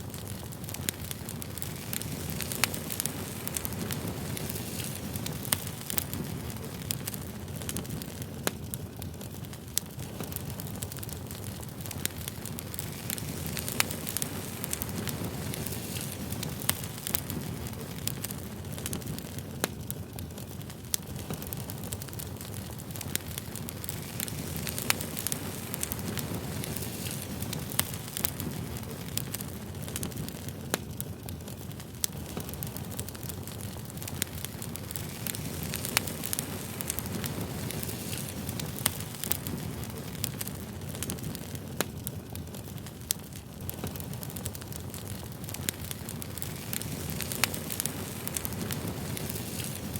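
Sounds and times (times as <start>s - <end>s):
campfire crackling: 0.0s - 49.9s.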